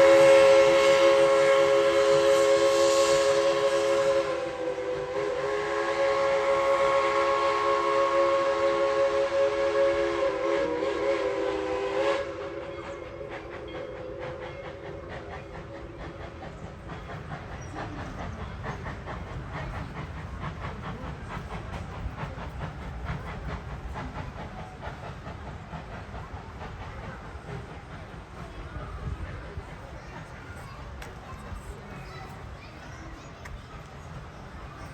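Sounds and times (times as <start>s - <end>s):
steam locomotive chime whistle: 0.0s - 15.7s
train wheels rumbling and clacking: 0.0s - 34.9s.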